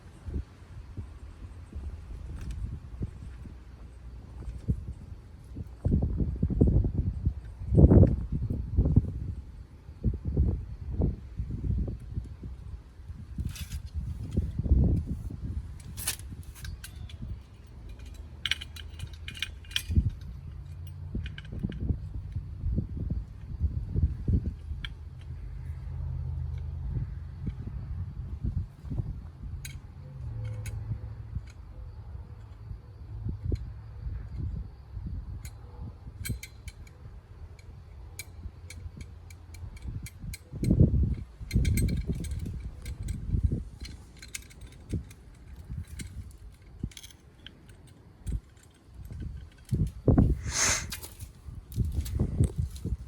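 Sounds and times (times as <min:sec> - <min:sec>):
metal tools clicking: 0:15.8 - 0:21.6
metal parts clinking: 0:15.8 - 0:21.8, 0:41.5 - 0:53.0.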